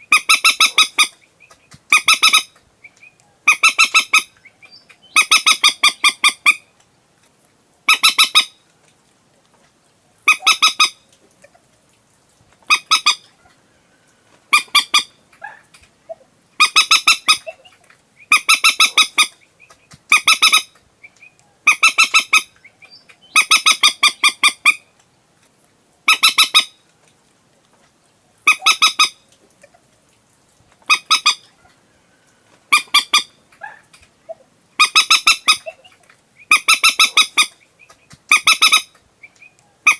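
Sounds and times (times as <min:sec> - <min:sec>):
moorhen calls: 0:00.0 - 0:06.8, 0:07.9 - 0:08.6, 0:10.2 - 0:11.1, 0:12.6 - 0:13.6, 0:14.5 - 0:24.9, 0:26.1 - 0:26.8, 0:28.4 - 0:29.2, 0:30.8 - 0:31.8, 0:32.7 - 0:39.9.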